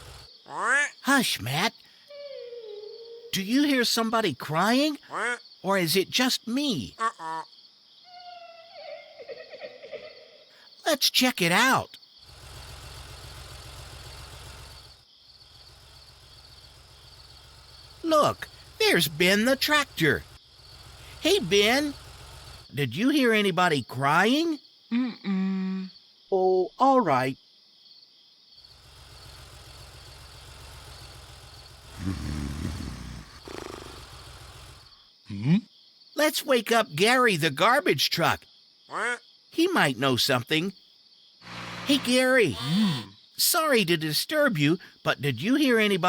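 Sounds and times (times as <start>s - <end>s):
crickets chirping: 0.0s - 46.0s
low vehicle engine rumble: 12.3s - 22.8s, 28.7s - 34.9s, 41.5s - 43.0s.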